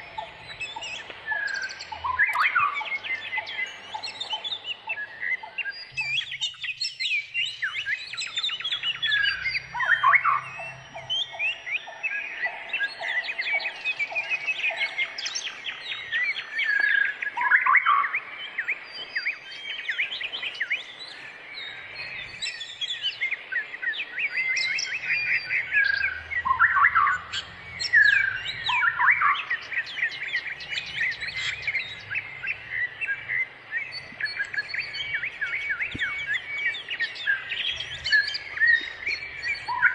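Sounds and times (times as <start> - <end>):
shrikes calling: 0.0 - 39.9.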